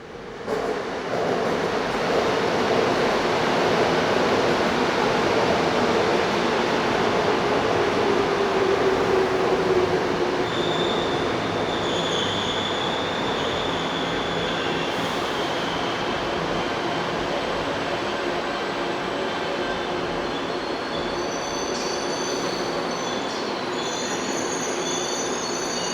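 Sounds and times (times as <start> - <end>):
train rumbling on rails: 0.0 - 25.9
high wheel squeal: 10.4 - 15.8, 20.3 - 25.9.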